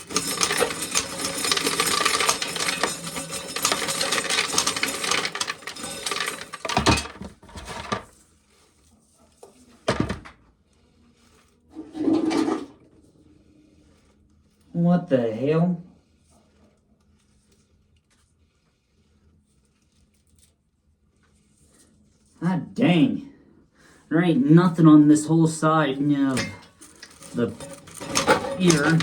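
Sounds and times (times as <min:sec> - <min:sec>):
corn sheller clattering rattle: 0:00.0 - 0:08.2, 0:25.5 - 0:29.0.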